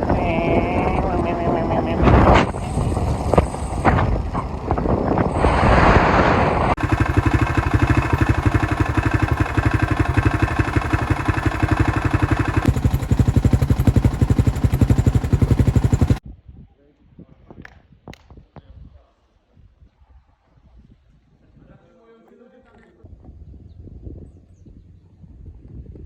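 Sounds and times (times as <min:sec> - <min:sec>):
wind noise: 0:00.0 - 0:21.9, 0:23.0 - 0:26.0
motorcycle engine running: 0:06.7 - 0:16.2.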